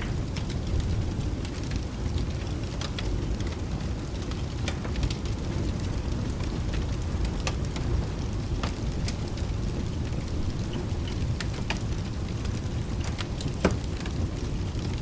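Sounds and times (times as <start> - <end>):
low rumble of thunder: 0.0 - 15.0
steady rain: 0.0 - 15.0
wood fire crackling: 0.0 - 15.0.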